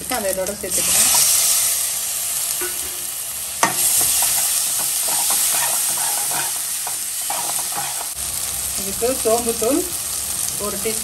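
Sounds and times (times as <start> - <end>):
tomatoes sizzling in oil: 0.0 - 11.0
metal spatula scraping pan: 3.6 - 8.2.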